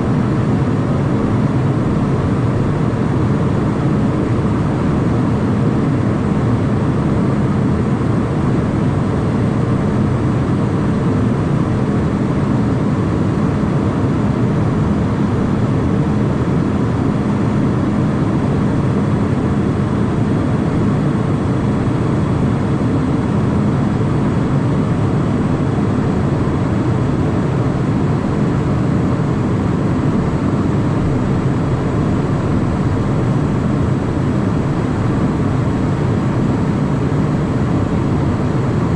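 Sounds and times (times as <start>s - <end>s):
faint hum: 0.0s - 38.9s
jet engines and airflow rushing: 0.0s - 38.9s.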